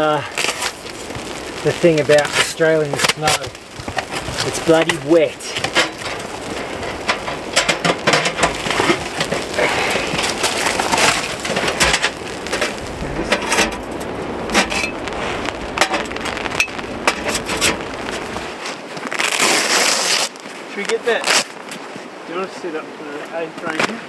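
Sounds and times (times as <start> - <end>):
gear crunching and knocking in snow: 0.0 - 22.1
steady rushing background: 0.3 - 18.6.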